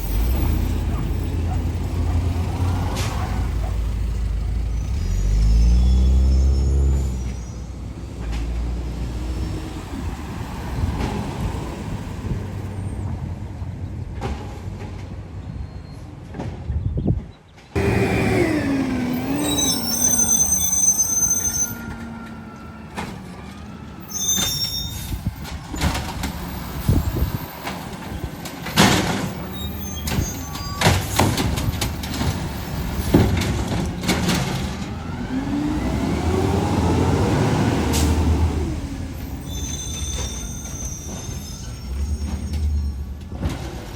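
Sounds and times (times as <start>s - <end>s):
garbage truck engine rumbling: 0.0s - 16.8s, 17.6s - 43.9s.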